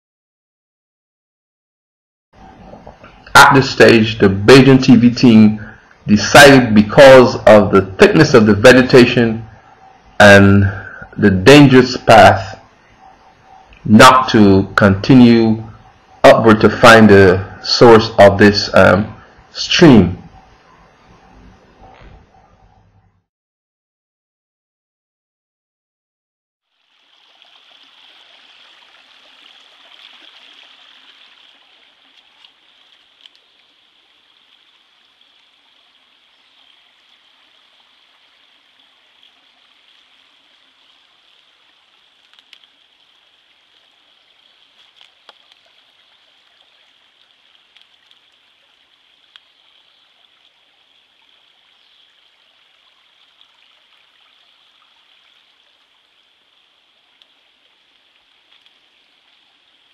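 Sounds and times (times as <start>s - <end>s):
stream flowing over rocks: 26.6s - 59.9s
faint clicks: 32.1s - 33.6s, 41.3s - 42.8s, 44.6s - 48.4s, 49.2s - 49.6s, 57.1s - 58.8s.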